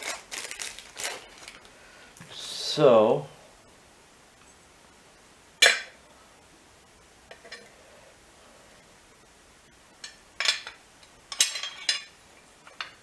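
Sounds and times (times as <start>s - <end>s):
metal parts and tools clinking: 10.4s - 13.0s.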